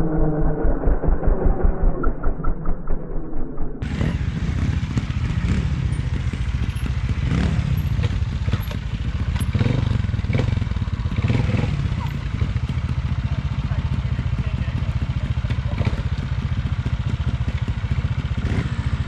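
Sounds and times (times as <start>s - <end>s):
motorcycle engine at low revs: 3.8s - 19.0s
knocks and clatter: 6.0s - 9.8s.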